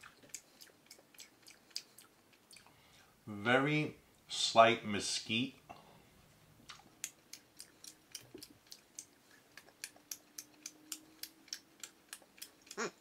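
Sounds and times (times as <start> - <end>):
person chewing jerky: 0.0 - 2.8, 6.7 - 13.0.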